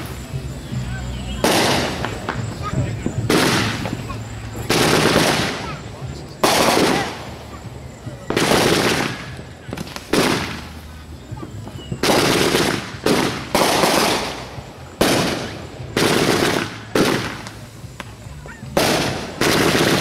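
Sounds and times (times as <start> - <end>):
fireworks exploding with crackle: 0.0 - 20.0.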